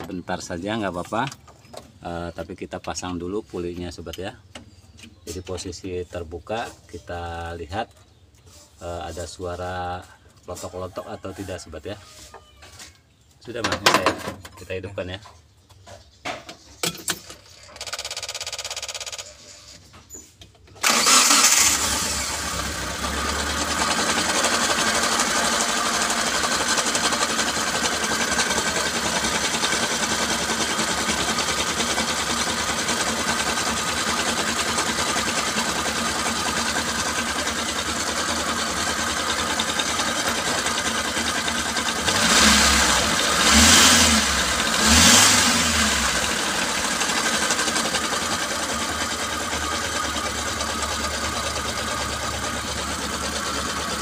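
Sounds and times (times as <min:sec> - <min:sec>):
starter cranking engine: 0:17.2 - 0:19.5, 0:20.8 - 0:54.0
engine revving: 0:20.8 - 0:36.9, 0:37.8 - 0:54.0
engine idling: 0:20.8 - 0:54.0.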